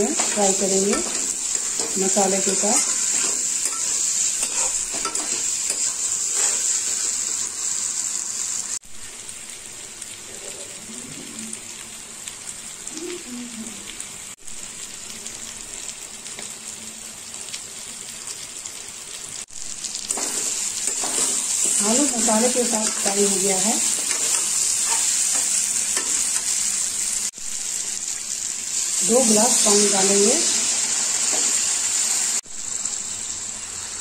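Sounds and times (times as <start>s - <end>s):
spatula scraping pan: 0.0s - 7.4s, 20.0s - 26.6s
potatoes sizzling in oil: 0.0s - 34.0s.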